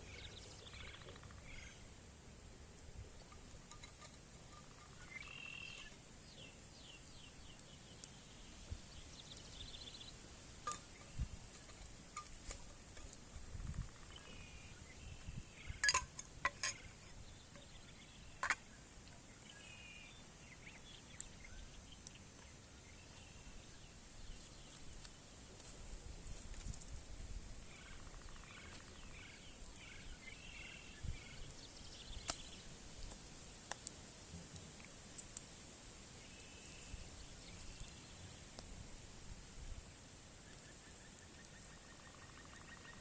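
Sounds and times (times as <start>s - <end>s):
birds chirping: 0.0s - 2.0s, 3.7s - 25.0s, 27.7s - 33.1s, 36.2s - 38.6s, 40.4s - 43.0s
steady high hiss: 0.0s - 43.0s.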